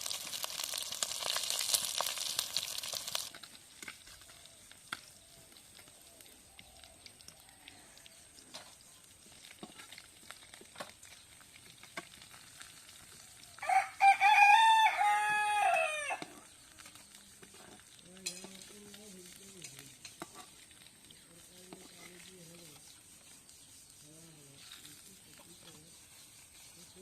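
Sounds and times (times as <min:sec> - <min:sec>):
stirring in a cooking pot: 0:00.0 - 0:13.6, 0:16.2 - 0:27.0
rooster crowing: 0:13.6 - 0:16.3.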